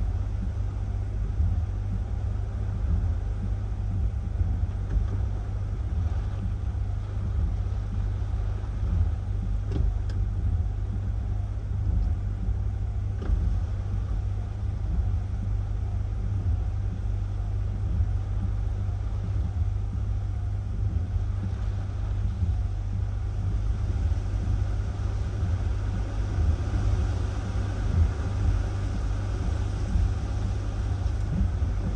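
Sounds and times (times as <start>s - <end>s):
strong wind buffeting microphone: 0.0s - 31.9s
faint ticks: 2.8s - 5.4s, 8.8s - 11.2s, 11.9s - 15.6s.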